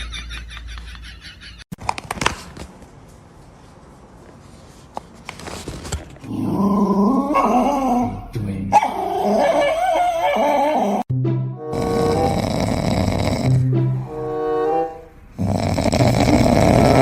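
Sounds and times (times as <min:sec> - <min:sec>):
dog whining and yipping: 0:08.8 - 0:11.0.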